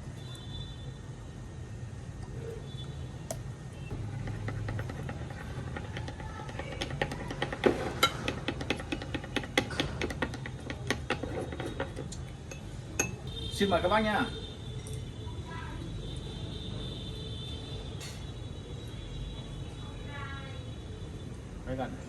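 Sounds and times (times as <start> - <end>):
dishes and utensils clinking: 3.9 - 13.3, 17.9 - 18.4.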